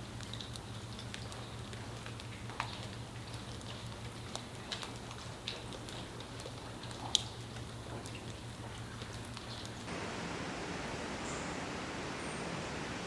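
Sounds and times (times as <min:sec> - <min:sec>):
drips and ticks: 0:00.0 - 0:13.0
even rushing noise: 0:09.9 - 0:13.0
low hum: 0:09.9 - 0:13.0.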